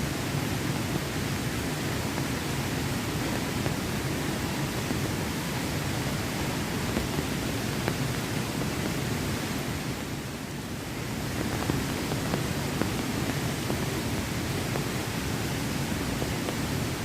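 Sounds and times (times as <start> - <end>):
water rushing: 0.1 - 17.0.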